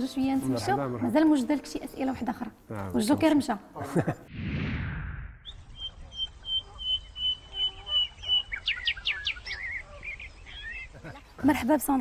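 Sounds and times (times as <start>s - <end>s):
small birds singing: 5.4s - 12.0s.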